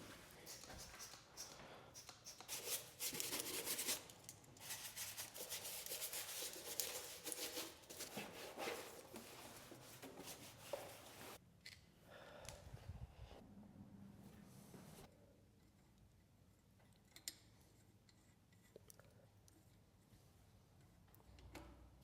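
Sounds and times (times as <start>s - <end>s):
surface being rubbed and scraped: 2.5s - 4.0s, 4.6s - 11.4s.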